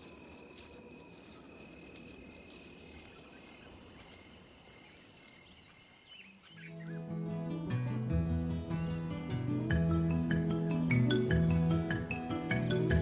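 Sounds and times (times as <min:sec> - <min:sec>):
faint bird chirps: 0:00.0 - 0:07.3
crickets chirring: 0:00.0 - 0:07.6.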